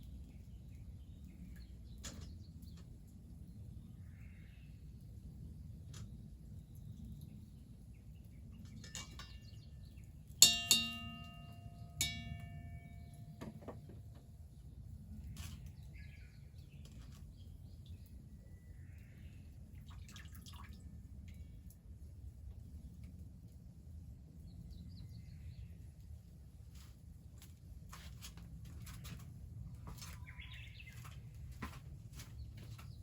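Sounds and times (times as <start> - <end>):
sharp pitched clinks: 10.4 - 13.2.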